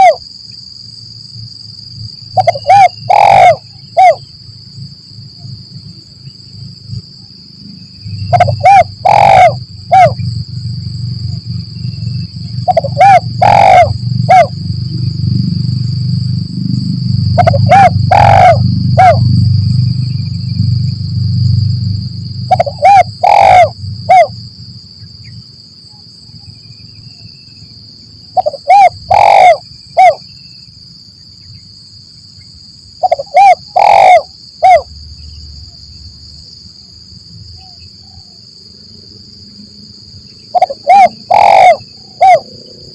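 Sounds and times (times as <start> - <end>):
dove cooing: 0.0 - 0.2, 2.4 - 4.2, 8.3 - 10.2, 12.6 - 14.5, 17.3 - 19.3, 22.5 - 24.3, 28.4 - 30.2, 33.0 - 34.8, 40.5 - 42.6
steady high-pitched whine: 0.0 - 42.9.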